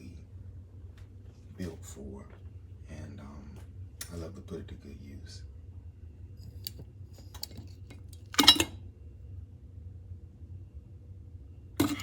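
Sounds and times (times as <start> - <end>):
teapot lid ticks and clinks: 6.6 - 8.7, 11.8 - 12.0.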